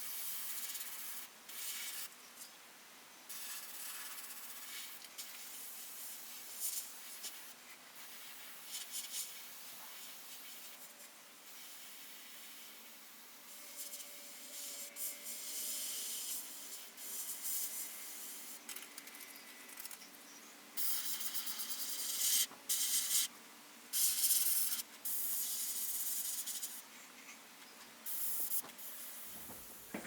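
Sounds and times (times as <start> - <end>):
airbrush spraying hiss: 3.3 - 10.8, 11.5 - 18.6, 20.8 - 23.3, 24.0 - 26.8, 28.0 - 29.8.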